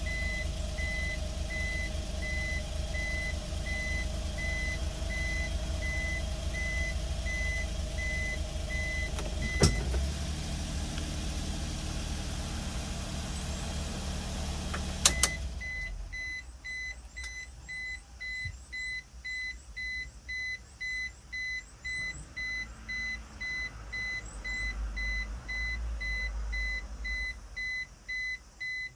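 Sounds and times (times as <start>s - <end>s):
reversing beeper beeps: 0.0s - 9.9s, 15.1s - 28.9s
truck engine running: 0.0s - 16.4s.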